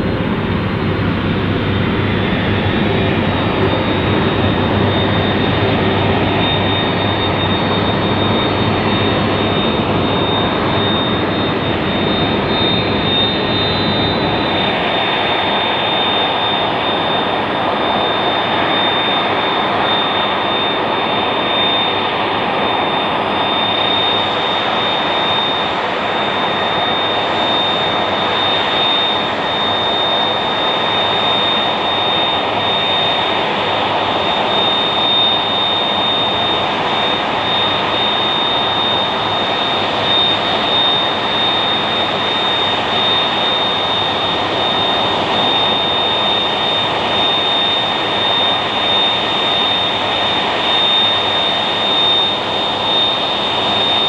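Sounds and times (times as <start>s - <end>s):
jet engines roaring with whine: 0.0s - 54.0s.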